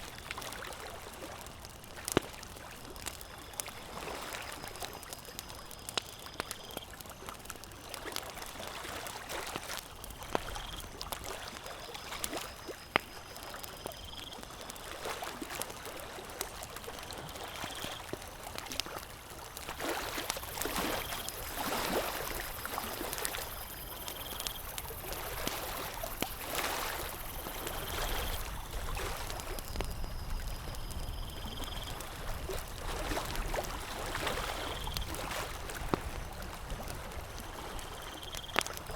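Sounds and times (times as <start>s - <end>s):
campfire crackling and popping: 0.0s - 38.9s
water lapping: 7.4s - 13.7s, 14.3s - 38.9s.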